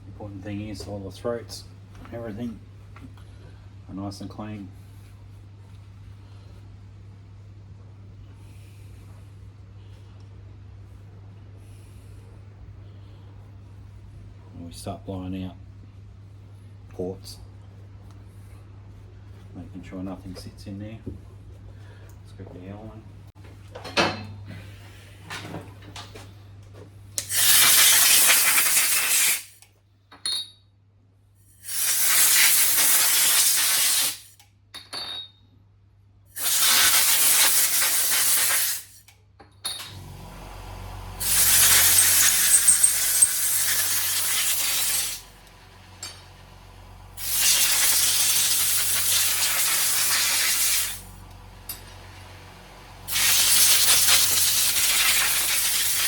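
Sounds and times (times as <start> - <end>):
compressed air blow gun hissing: 27.2 - 29.6, 31.6 - 34.4, 36.4 - 39.0, 41.2 - 45.4, 47.2 - 51.2, 53.1 - 56.0.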